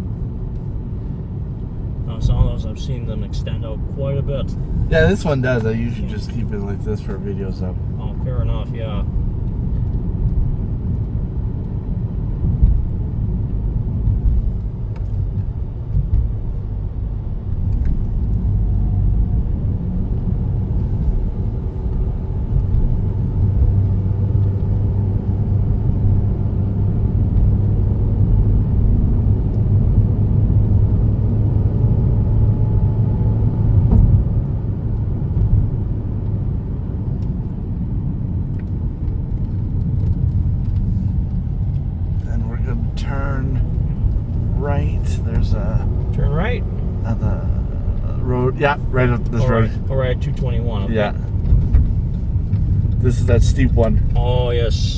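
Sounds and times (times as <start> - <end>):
car engine and tyres rumbling: 0.0 - 54.9.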